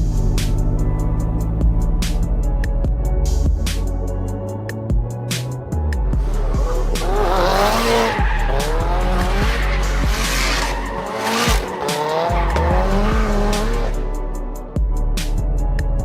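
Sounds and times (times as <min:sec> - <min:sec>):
bass-heavy music: 0:00.0 - 0:16.0
car tyres squealing: 0:06.2 - 0:14.1.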